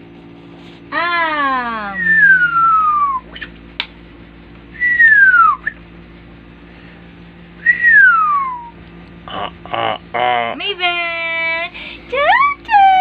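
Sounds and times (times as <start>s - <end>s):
whistle gliding down: 1.9s - 3.5s, 4.8s - 5.8s, 7.6s - 8.8s.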